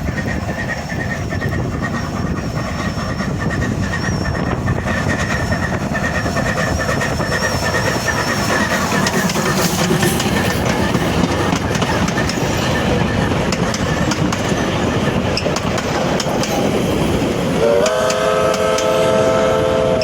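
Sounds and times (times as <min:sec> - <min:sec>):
train rumbling and clattering on rails: 0:00.0 - 0:20.0
train whistle chord: 0:17.6 - 0:20.0.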